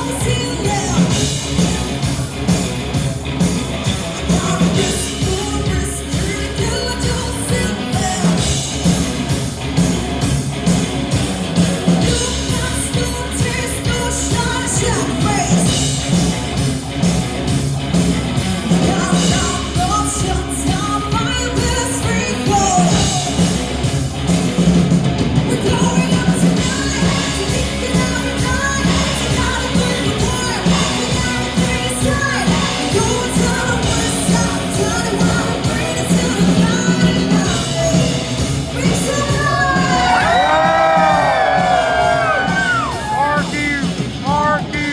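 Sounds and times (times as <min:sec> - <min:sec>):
woman singing: 0:00.0 - 0:01.4, 0:04.2 - 0:08.7, 0:12.0 - 0:15.9, 0:18.7 - 0:23.4, 0:25.4 - 0:41.8
bass: 0:00.0 - 0:44.9
drums: 0:00.0 - 0:44.9
guitars: 0:00.0 - 0:44.9.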